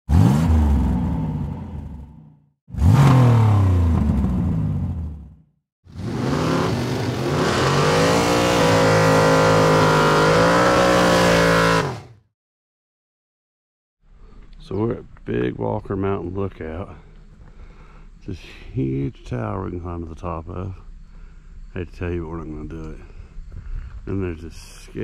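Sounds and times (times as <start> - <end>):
car engine revving: 0.1 - 12.2.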